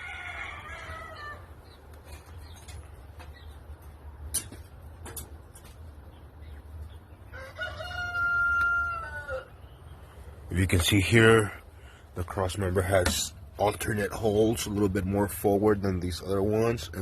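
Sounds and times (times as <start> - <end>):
rooster crowing: 0.0 - 1.6, 7.3 - 9.6.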